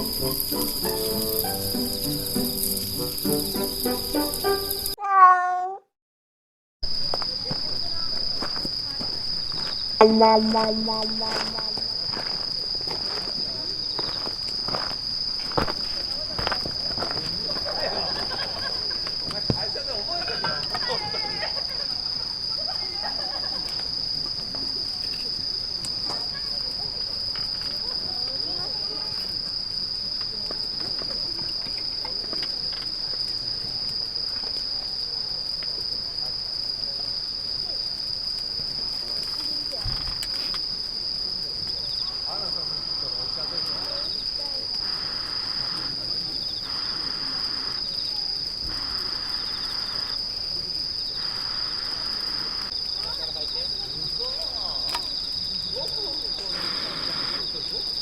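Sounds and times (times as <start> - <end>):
insects trilling: 0.0 - 5.0, 6.9 - 58.0
low insect buzz: 0.0 - 5.0, 10.0 - 12.3, 44.8 - 50.4.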